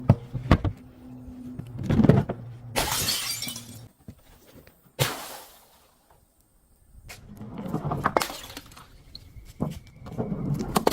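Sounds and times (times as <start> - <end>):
glass bottles shattering: 2.8 - 3.9, 8.2 - 8.9.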